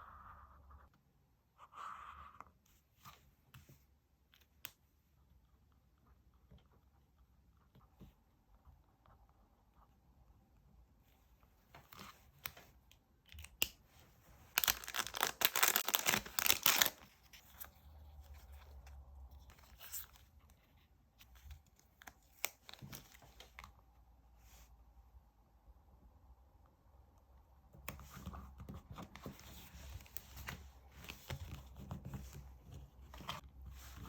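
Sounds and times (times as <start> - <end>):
paper rustling and clicks: 14.6 - 17.4.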